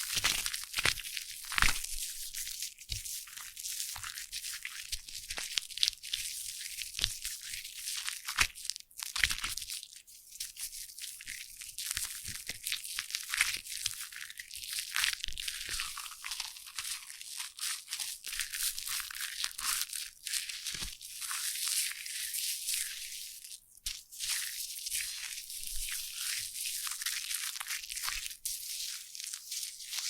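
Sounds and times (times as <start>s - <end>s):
foam fizzing and crackling: 0.0s - 1.0s.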